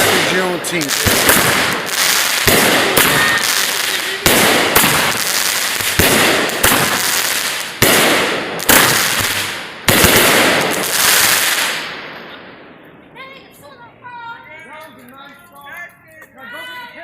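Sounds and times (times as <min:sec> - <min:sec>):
fireworks hissing: 0:00.0 - 0:12.4
fireworks banging: 0:00.0 - 0:16.4.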